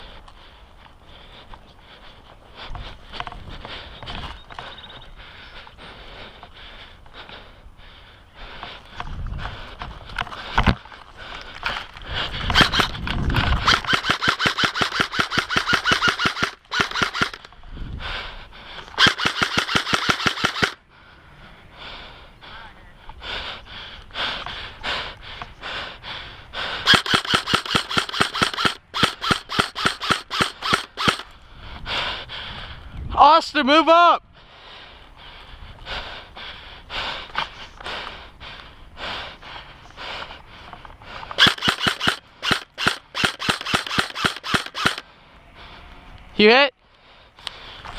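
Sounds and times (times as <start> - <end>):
airsoft rifles firing full-auto: 12.5 - 13.0, 13.6 - 17.5, 19.0 - 20.8, 26.8 - 31.3, 41.4 - 45.0.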